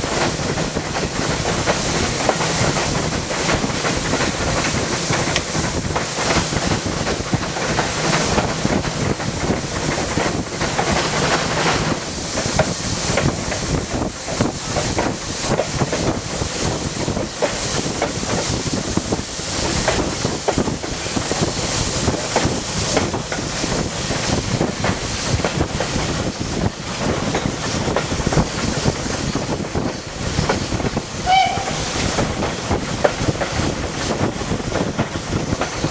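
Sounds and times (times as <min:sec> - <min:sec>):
train wheels rattling on rails: 0:00.0 - 0:35.9
wind buffeting microphone: 0:00.0 - 0:35.9
high squeak: 0:31.2 - 0:31.9.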